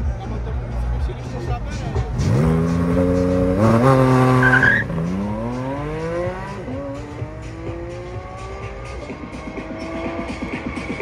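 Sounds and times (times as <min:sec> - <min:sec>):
car engine accelerating: 0:01.7 - 0:11.0
tyre squeal: 0:04.3 - 0:05.0.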